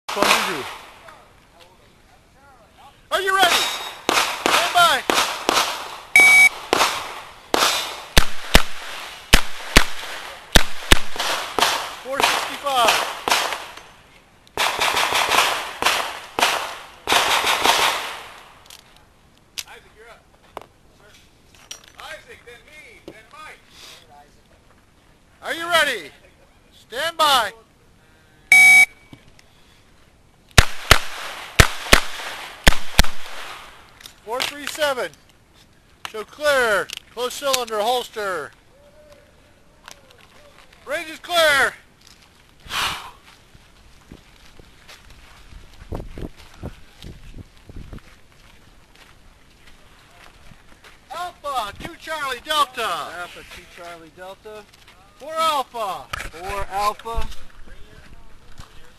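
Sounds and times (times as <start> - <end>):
shot timer beep: 6.2 - 6.5, 28.5 - 29.1.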